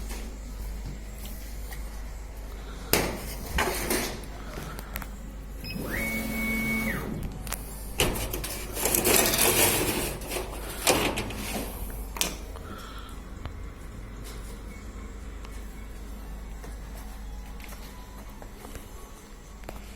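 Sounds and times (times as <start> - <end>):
stepper motor whine: 5.6 - 7.3
mechanical rattling: 8.0 - 11.7.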